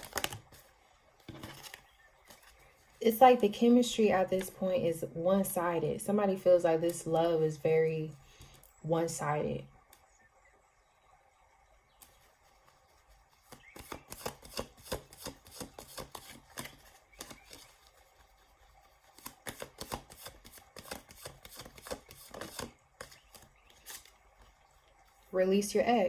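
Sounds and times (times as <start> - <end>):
cards being shuffled: 0.0 - 0.7, 1.3 - 2.7, 13.4 - 18.2, 19.1 - 24.2.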